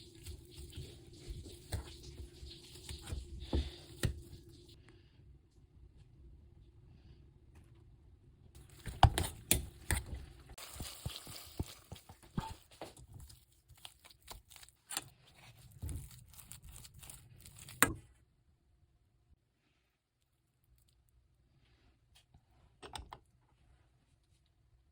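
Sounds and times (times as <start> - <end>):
rustling and crinkling: 8.6 - 18.2.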